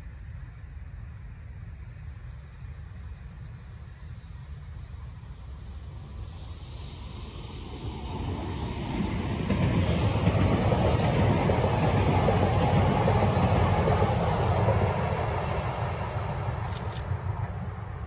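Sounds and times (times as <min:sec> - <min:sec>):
train wheels rumbling on rails: 0:07.4 - 0:18.0.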